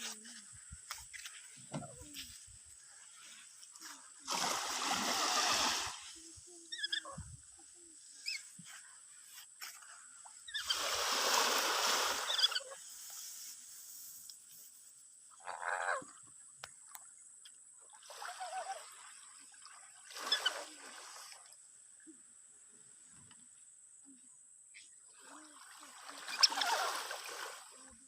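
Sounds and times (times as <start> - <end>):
sea waves: 4.0 - 7.0, 10.5 - 12.7, 25.3 - 28.0.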